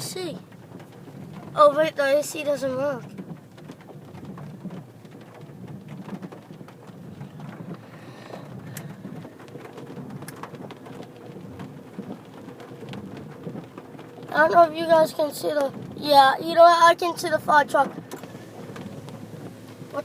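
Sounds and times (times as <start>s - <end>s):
low rumble in car cabin: 0.0s - 20.0s
light ticks: 17.8s - 19.6s.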